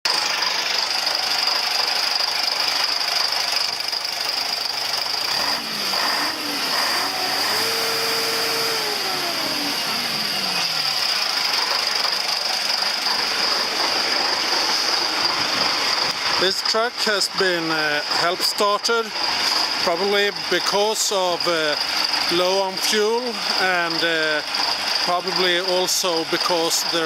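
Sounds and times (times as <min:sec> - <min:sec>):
diesel truck engine running: 0:00.0 - 0:27.0
steady high whine: 0:03.7 - 0:18.4.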